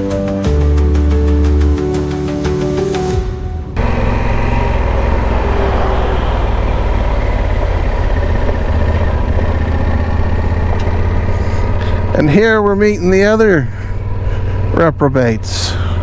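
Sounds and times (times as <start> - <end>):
motorcycle engine running: 3.8 - 16.0
wind and road noise: 3.8 - 16.0.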